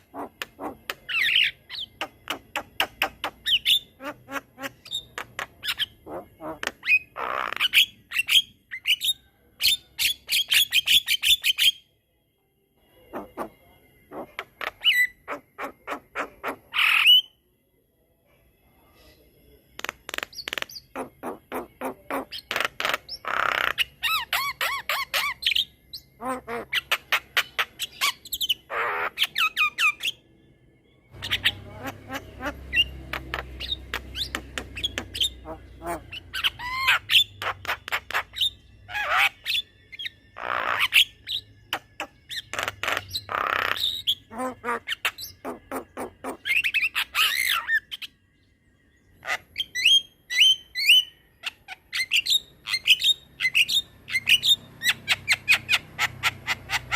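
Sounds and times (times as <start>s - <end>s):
myna bird singing and squawking: 0.0s - 11.8s, 13.1s - 17.4s, 19.8s - 30.2s, 31.1s - 48.2s, 49.1s - 56.9s.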